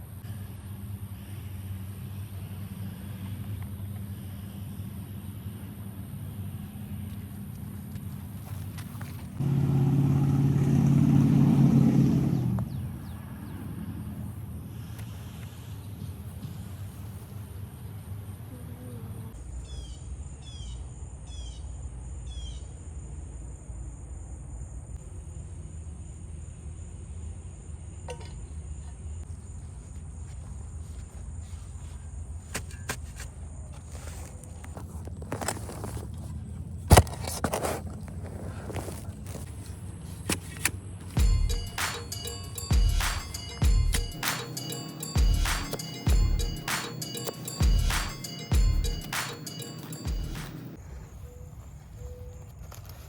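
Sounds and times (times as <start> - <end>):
engine humming: 0.0 - 19.3, 34.3 - 51.4.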